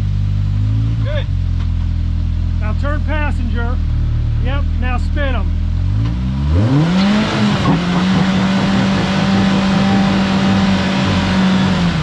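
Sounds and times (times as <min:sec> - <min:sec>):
engine at high revs: 0:05.7 - 0:12.0.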